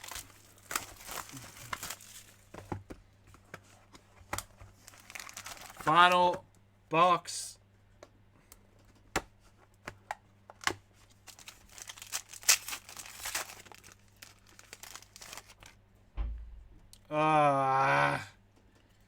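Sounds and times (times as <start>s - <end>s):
wrapping tearing and crumpling: 0.0s - 2.5s, 4.4s - 5.9s, 10.6s - 15.8s
low thump: 16.2s - 17.0s.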